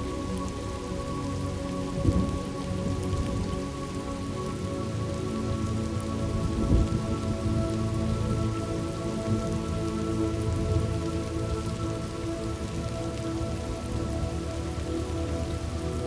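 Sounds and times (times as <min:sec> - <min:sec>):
steady rain falling: 0:00.0 - 0:16.0
low thunder rumble: 0:06.4 - 0:08.4.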